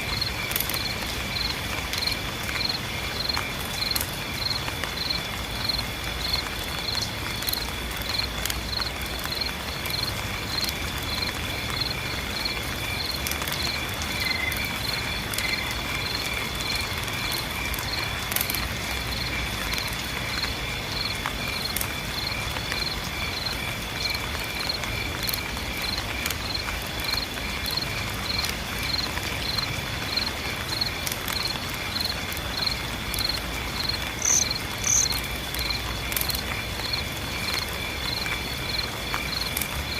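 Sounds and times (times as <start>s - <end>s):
rain hissing: 0.0s - 39.9s
insects chirping rhythmically: 0.1s - 39.9s
water drips ticking: 0.1s - 39.9s
high-pitched insect trill: 32.0s - 35.8s.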